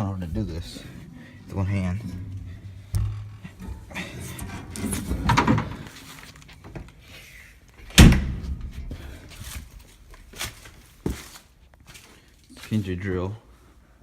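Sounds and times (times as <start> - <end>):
handling and rustling noise: 0.0 - 13.4
door slamming shut: 1.6 - 6.0, 7.8 - 9.1.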